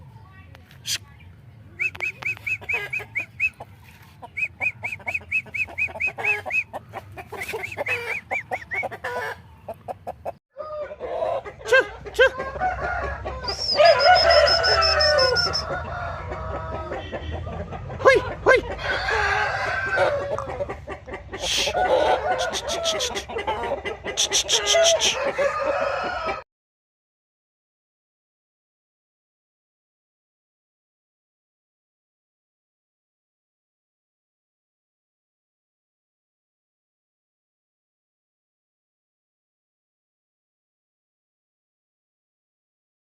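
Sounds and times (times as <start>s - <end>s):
chickens clucking and calling: 0.0s - 26.4s
rooster crowing: 10.6s - 11.4s, 12.3s - 17.1s, 18.7s - 20.5s, 21.6s - 23.3s, 24.4s - 26.4s.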